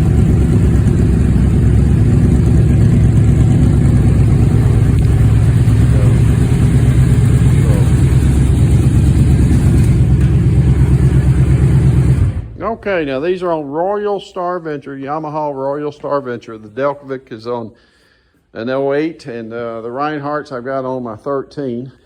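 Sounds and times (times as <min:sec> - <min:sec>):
motorcycle engines idling: 0:00.0 - 0:12.5.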